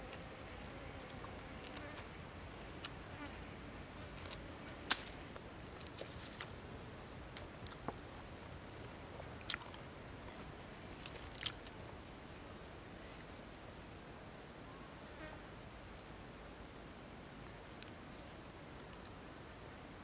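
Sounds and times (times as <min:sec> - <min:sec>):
chewing and crunching lettuce: 0:01.1 - 0:02.0, 0:04.2 - 0:05.1, 0:07.4 - 0:11.8.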